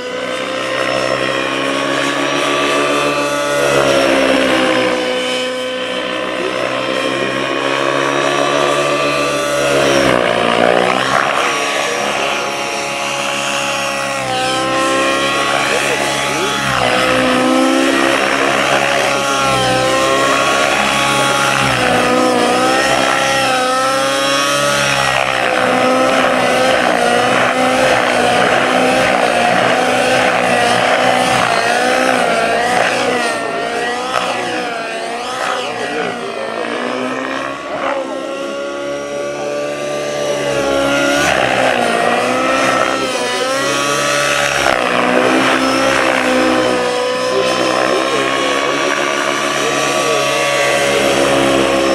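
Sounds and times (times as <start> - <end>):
model helicopter engine and rotor whine: 0.0 - 51.9.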